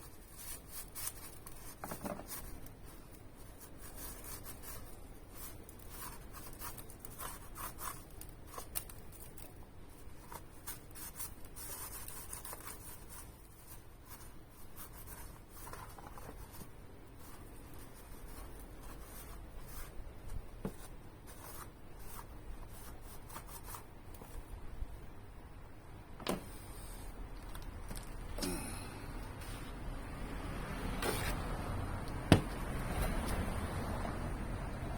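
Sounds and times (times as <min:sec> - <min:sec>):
hand rubbing and scraping: 0:00.0 - 0:24.7, 0:26.3 - 0:33.6.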